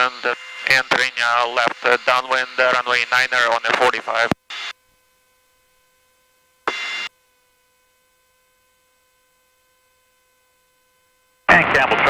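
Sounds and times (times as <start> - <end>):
radio static burst: 0.0 - 4.7, 11.5 - 12.0.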